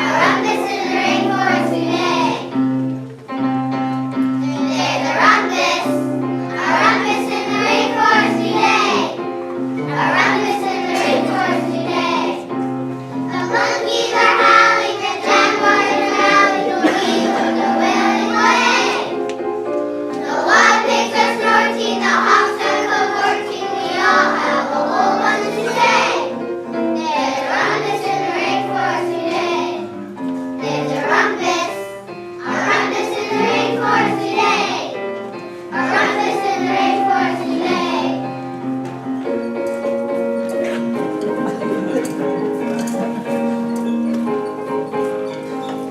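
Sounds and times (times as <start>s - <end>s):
children singing: 0.0s - 2.7s, 4.4s - 19.4s, 20.0s - 38.7s
instrumental accompaniment: 0.0s - 45.9s.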